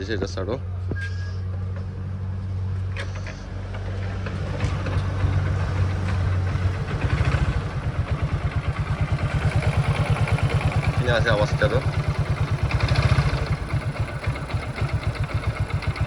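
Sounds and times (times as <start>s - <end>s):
motorcycle engine running: 4.0s - 16.0s.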